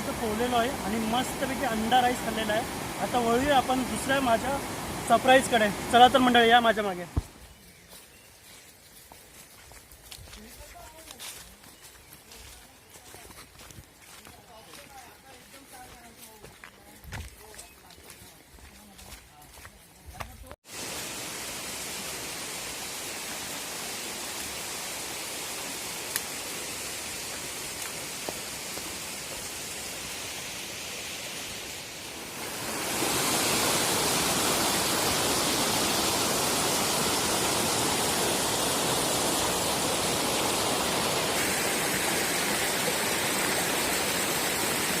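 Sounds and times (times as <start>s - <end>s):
waterfall rushing: 0.0s - 7.4s, 20.7s - 45.0s.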